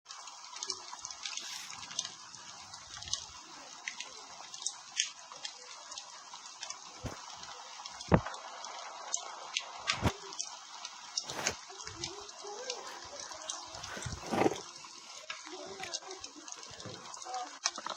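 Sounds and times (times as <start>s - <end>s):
campfire crackling: 0.1s - 17.9s.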